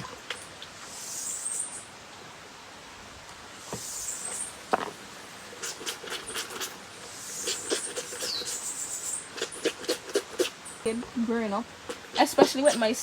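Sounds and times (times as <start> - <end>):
wet clothes scrubbed by hand: 5.6 - 6.8, 7.4 - 10.6, 11.9 - 13.0.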